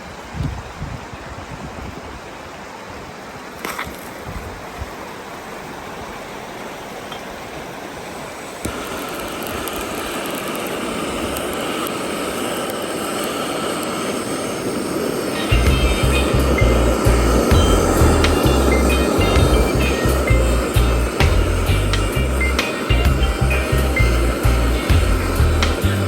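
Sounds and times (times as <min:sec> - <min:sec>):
river water rushing: 0:00.0 - 0:26.0
faint steady tone: 0:06.0 - 0:26.0.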